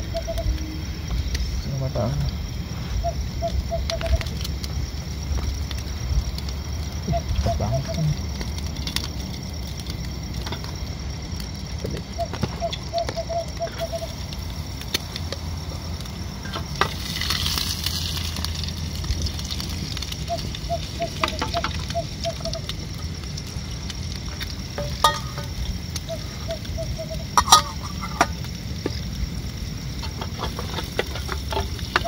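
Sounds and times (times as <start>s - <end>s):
rice sizzling in a metal pan: 0.0s - 32.0s
short pulsing calls: 12.2s - 14.2s, 26.0s - 28.2s
utensil knocking against a pan: 24.8s - 25.6s.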